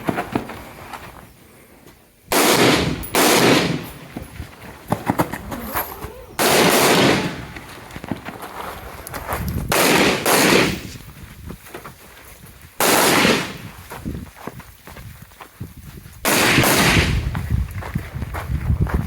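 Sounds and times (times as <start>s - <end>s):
distant gunfire cracks: 2.3s - 4.0s, 6.4s - 7.6s, 9.7s - 10.9s, 12.8s - 13.6s, 16.3s - 17.2s
loud rifle shots: 2.3s - 4.1s, 6.4s - 7.6s, 9.7s - 11.0s, 12.8s - 13.7s, 16.3s - 17.2s.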